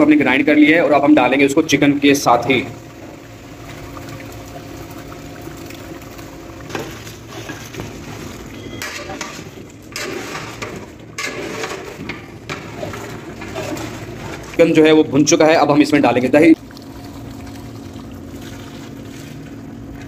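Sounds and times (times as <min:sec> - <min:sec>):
metal spatula scraping a pot: 0:08.6 - 0:14.5.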